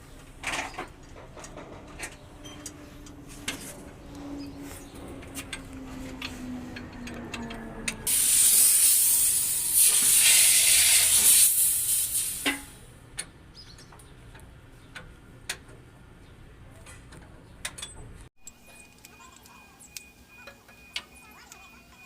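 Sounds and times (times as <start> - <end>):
loud hiss of spraying air: 8.1 - 12.8.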